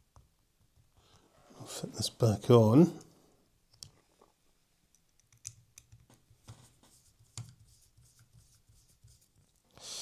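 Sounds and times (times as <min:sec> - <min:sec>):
small clicks of model parts: 0:04.9 - 0:06.2.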